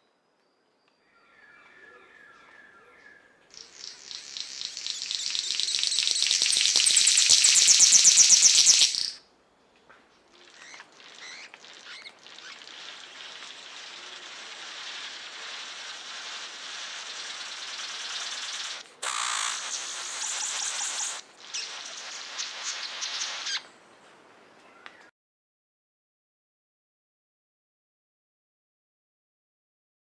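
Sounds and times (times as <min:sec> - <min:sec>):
birds and insects chorus: 0:10.4 - 0:23.7
pulsing high trill: 0:13.5 - 0:23.0.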